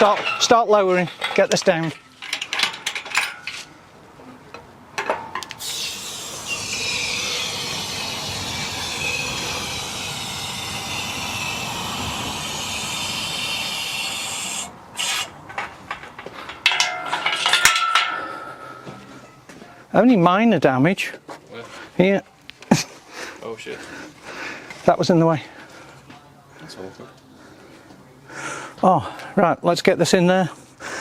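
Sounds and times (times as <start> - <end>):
hydraulic fluid hissing through valve: 5.6 - 15.3.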